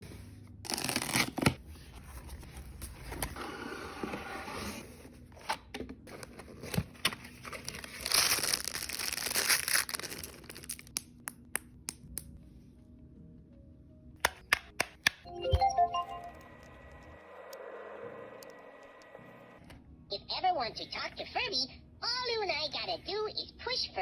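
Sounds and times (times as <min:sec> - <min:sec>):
packaging crinkling and tearing: 0:00.7 - 0:01.6, 0:06.1 - 0:11.2.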